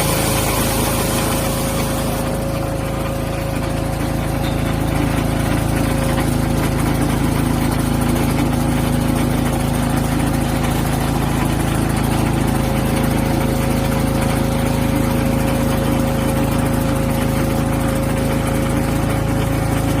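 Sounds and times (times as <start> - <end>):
steady whine: 0.0 - 8.4
engine running steadily: 0.0 - 20.0.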